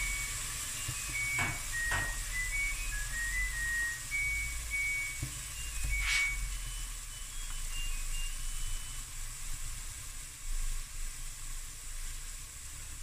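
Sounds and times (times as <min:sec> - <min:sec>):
thin high whistled notes: 0:00.0 - 0:09.2
vegetables sizzling in a pot: 0:00.0 - 0:13.0.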